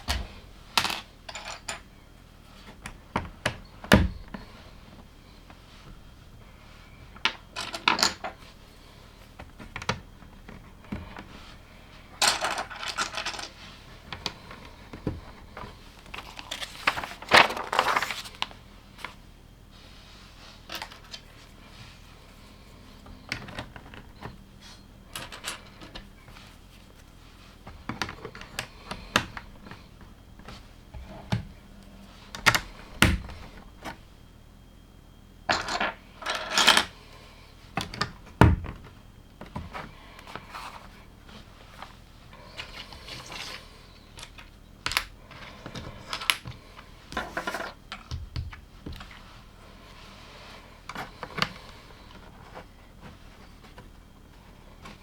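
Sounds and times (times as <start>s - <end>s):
loose plastic pieces rattling: 12.2s - 13.5s, 16.1s - 18.4s.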